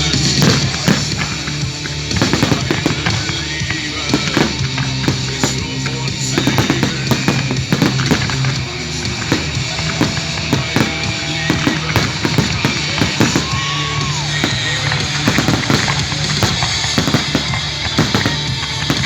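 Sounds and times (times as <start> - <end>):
fireworks bangs and crackles: 0.0 - 19.0
music with drum beat: 0.4 - 1.3, 2.2 - 3.3, 4.1 - 5.6, 6.3 - 13.8, 15.2 - 19.0.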